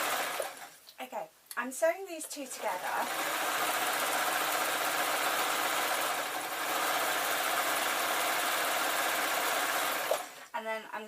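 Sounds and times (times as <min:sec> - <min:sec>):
sewing machine running: 0:00.0 - 0:00.7, 0:02.5 - 0:10.4.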